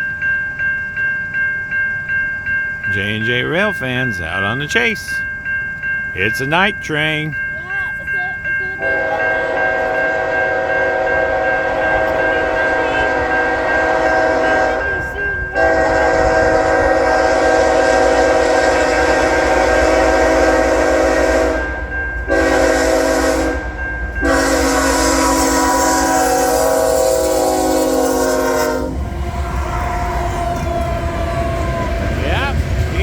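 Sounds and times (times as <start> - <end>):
low rumble of moving train: 0.0 - 33.0
locomotive air horn blasts: 8.8 - 32.1.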